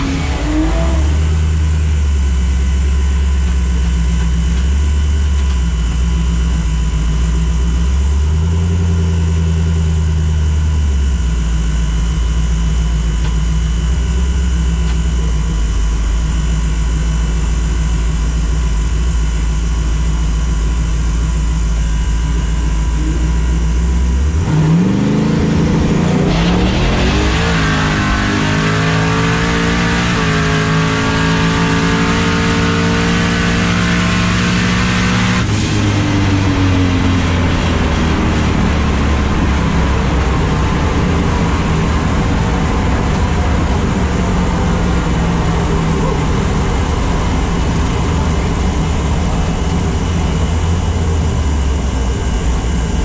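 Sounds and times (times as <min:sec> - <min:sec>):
car engine accelerating hard: 0:00.0 - 0:53.0.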